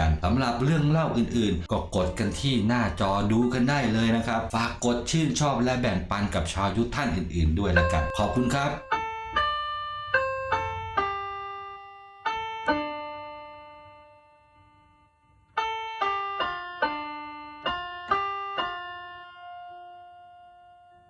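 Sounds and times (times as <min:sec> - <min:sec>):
solo piano music: 0:06.4 - 0:21.0.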